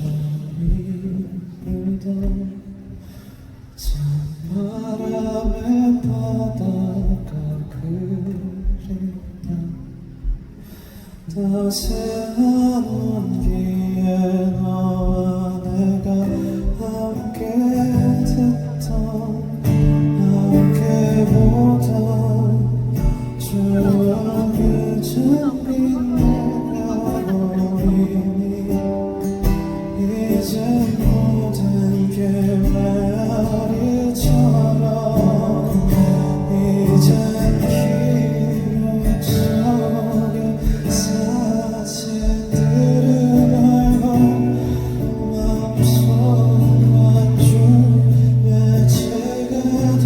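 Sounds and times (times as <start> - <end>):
guitar: 0.0 - 50.0
person singing: 11.3 - 50.0.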